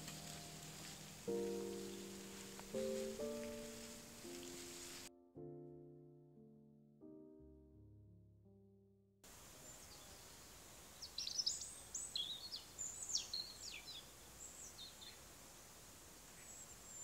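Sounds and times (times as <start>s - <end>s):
songbird chirping: 0.0s - 5.1s, 9.3s - 17.0s
piano tune: 0.0s - 9.1s.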